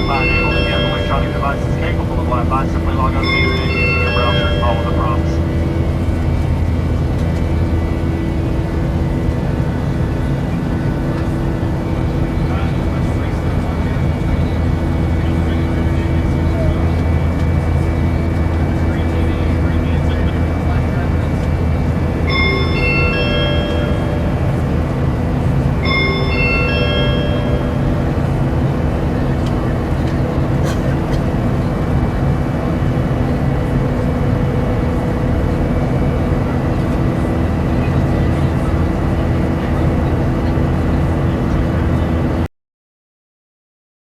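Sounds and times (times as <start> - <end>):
multi-note cabin chime: 0.0 - 6.1, 22.2 - 29.4
airliner cabin rumble: 0.0 - 42.5.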